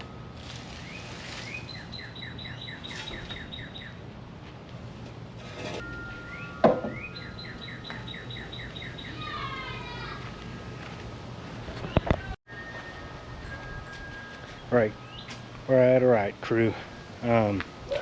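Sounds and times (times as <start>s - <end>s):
songbird singing: 0.7s - 4.1s, 5.8s - 10.0s, 11.8s - 18.0s.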